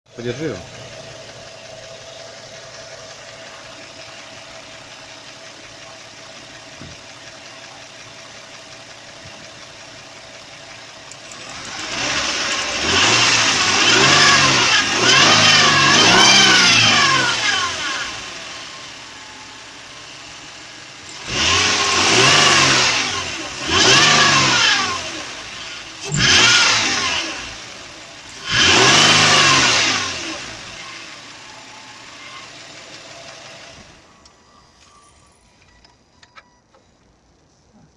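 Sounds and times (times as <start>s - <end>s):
car engine revving: 0.1s - 34.0s.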